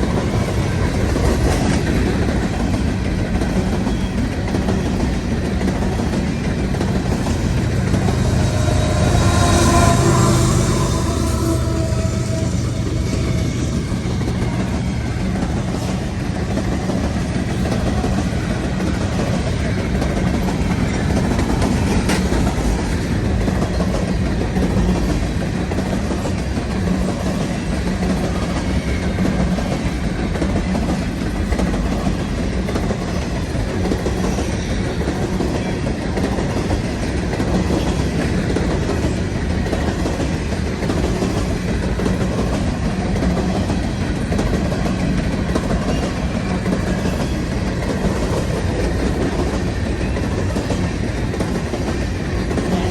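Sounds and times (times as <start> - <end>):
freight train rolling past: 0.0 - 52.9.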